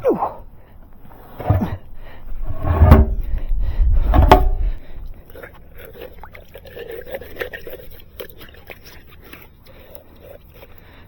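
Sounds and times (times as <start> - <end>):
clattering handling noise: 1.4 - 3.3, 4.0 - 4.7
low rumble: 1.4 - 5.2
sharp knocks: 4.1 - 4.7.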